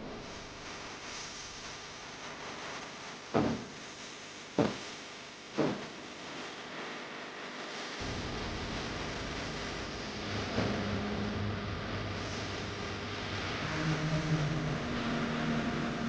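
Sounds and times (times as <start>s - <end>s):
steady hiss: 0.2s - 6.6s.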